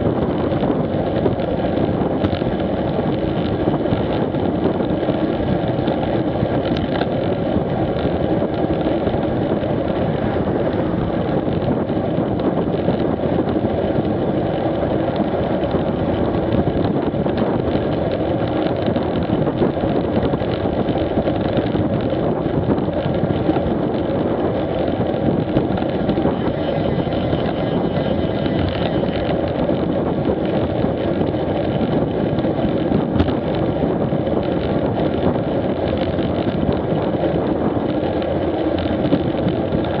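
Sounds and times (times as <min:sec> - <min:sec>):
motorcycle engine running: 0:00.0 - 0:40.0
wind on microphone: 0:00.0 - 0:40.0.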